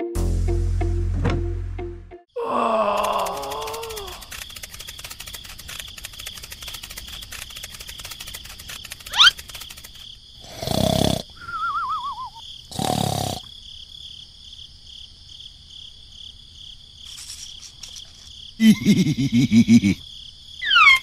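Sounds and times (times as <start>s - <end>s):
short pitched squeaks: 9.0s - 9.6s
cartoon snoring: 10.4s - 11.4s, 12.7s - 13.5s
falling wavy whistle: 11.4s - 12.4s.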